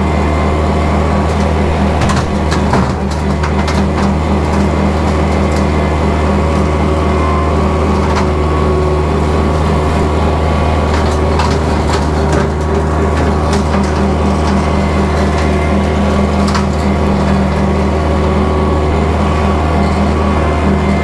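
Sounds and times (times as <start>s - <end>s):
rotary cutter chewing brush: 0.0s - 21.0s
tractor diesel engine: 0.0s - 21.0s
branches cracking: 0.7s - 21.0s.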